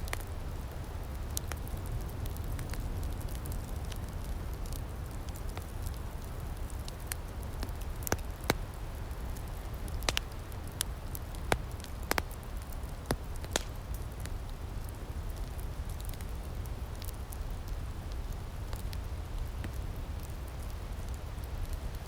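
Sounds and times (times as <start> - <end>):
wood fire crackling: 0.0 - 22.0
sharp pops of fire: 6.6 - 8.7, 9.3 - 17.2.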